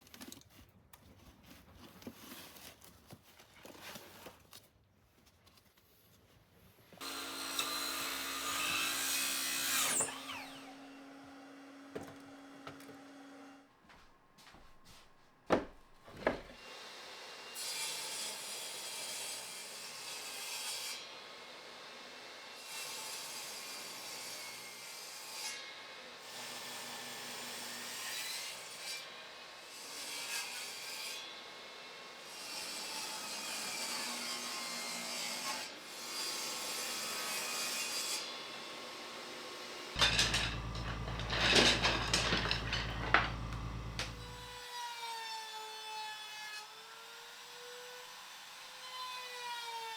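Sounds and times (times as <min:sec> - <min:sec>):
sawing on wood: 0:07.0 - 0:13.5, 0:40.0 - 0:45.8
power tool cutting wood: 0:07.0 - 0:13.6, 0:39.9 - 0:49.9.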